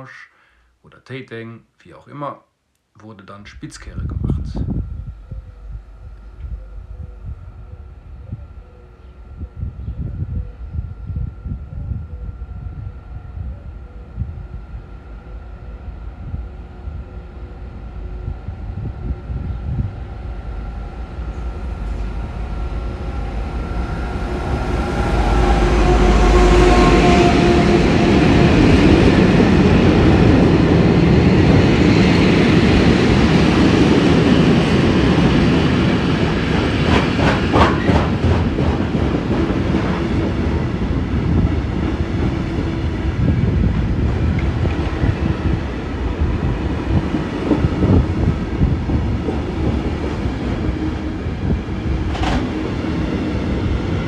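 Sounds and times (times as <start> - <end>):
diesel locomotive engine: 3.5 - 54.0
wheels clattering over rail joints: 36.8 - 40.0.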